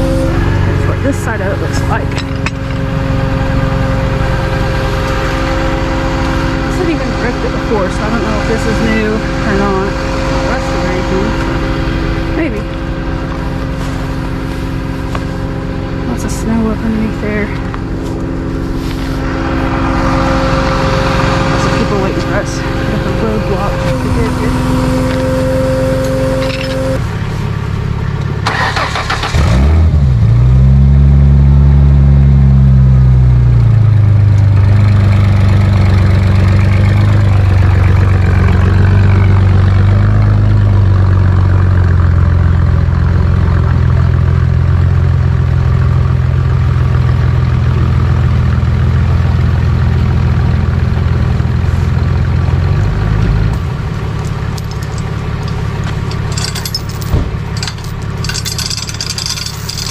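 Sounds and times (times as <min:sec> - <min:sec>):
vehicle engine idling: 0:00.0 - 0:59.9
engine starter cranking: 0:28.4 - 0:29.8, 0:54.1 - 0:59.9.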